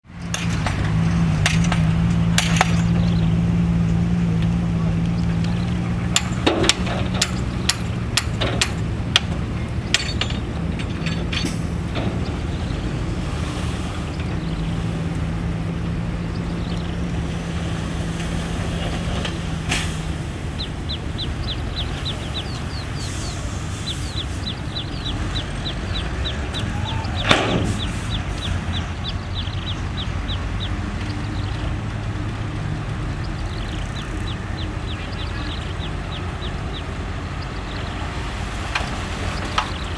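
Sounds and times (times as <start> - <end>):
heavy diesel engine running: 0.0 - 39.9
sharp metallic knocks: 0.2 - 17.1, 17.9 - 33.0.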